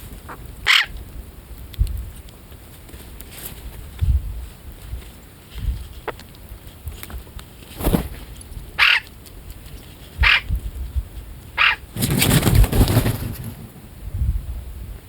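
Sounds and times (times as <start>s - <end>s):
harsh bird calls: 0.7s - 0.9s, 8.8s - 9.1s, 11.6s - 13.6s
wings flapping: 7.6s - 8.4s, 11.6s - 14.0s.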